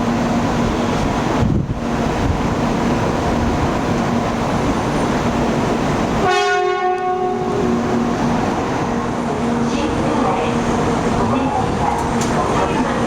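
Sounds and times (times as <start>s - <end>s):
train running rushing noise: 0.0s - 13.0s
train horn blast: 6.2s - 8.1s.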